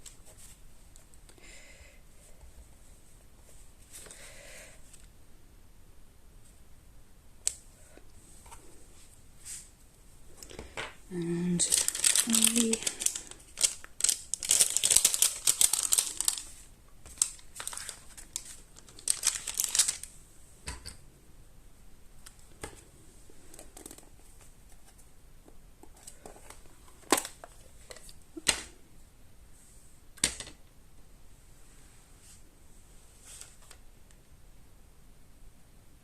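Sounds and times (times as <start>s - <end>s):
paper rustling and crinkling: 11.5s - 20.1s.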